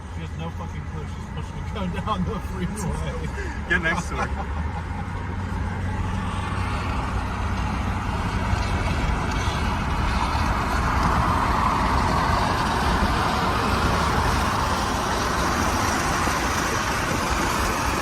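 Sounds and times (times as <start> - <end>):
car engine and tyre rumble: 0.0 - 18.0.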